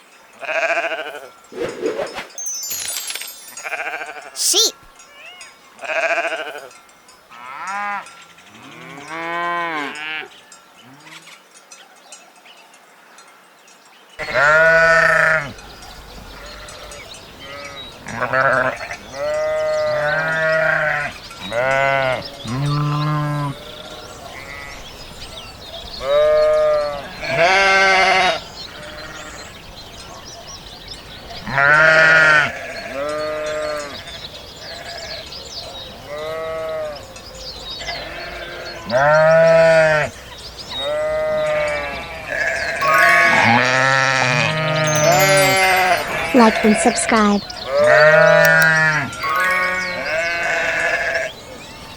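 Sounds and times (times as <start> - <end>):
outdoor background noise: 0.0 - 51.9
sheep bleating: 5.8 - 6.7, 14.2 - 15.5, 31.6 - 34.0, 37.8 - 40.1, 40.9 - 46.9, 47.7 - 51.3.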